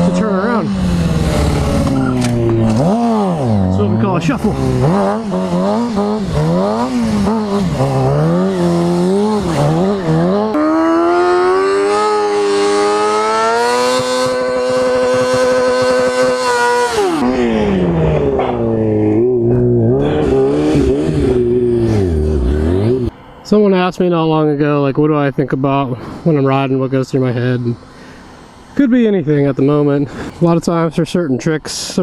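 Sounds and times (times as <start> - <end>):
motorcycle engine revving: 0.0 - 23.3.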